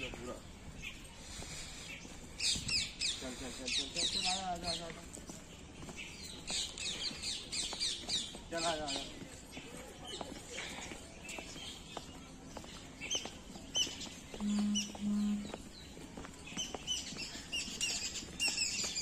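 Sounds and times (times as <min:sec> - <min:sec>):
birds chirping: 0:00.0 - 0:19.0
low hums: 0:14.4 - 0:15.6
sweeping bird call notes: 0:14.4 - 0:15.8.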